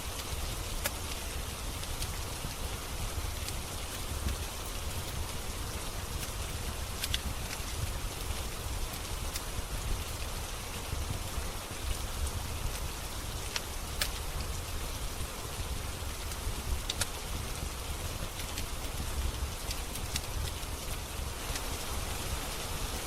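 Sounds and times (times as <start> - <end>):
steady rain falling: 0.0 - 23.0
wood fire crackling: 0.0 - 23.0.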